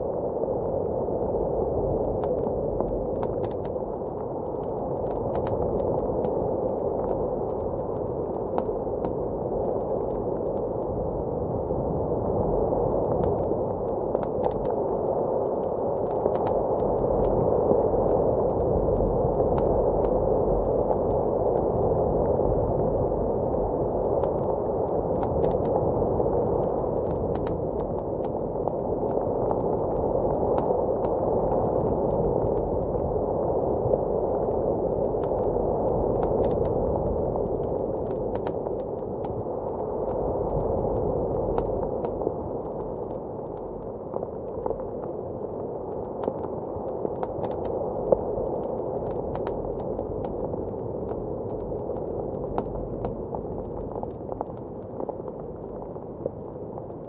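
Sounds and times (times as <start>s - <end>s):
muffled blizzard wind: 0.0s - 57.0s
fireplace crackling and popping: 25.2s - 57.0s.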